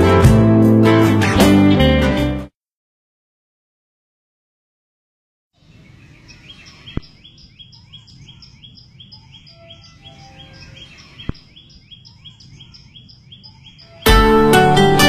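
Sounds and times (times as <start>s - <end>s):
bird chirping: 5.6s - 14.2s.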